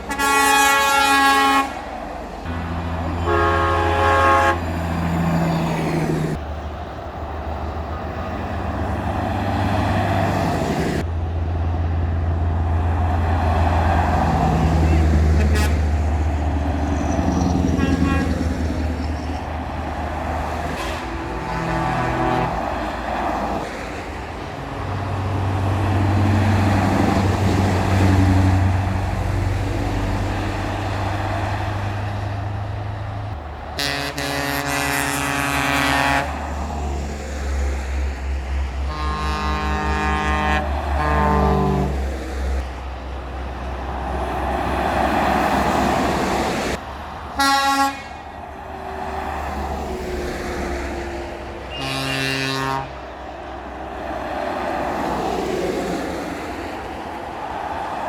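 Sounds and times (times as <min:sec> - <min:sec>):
air horn blasts: 0:00.0 - 0:05.0, 0:14.6 - 0:16.0, 0:17.3 - 0:19.3, 0:20.7 - 0:23.0, 0:33.8 - 0:36.4, 0:38.8 - 0:42.0, 0:47.4 - 0:48.3, 0:51.7 - 0:53.0
truck engines rumbling: 0:00.0 - 0:58.0.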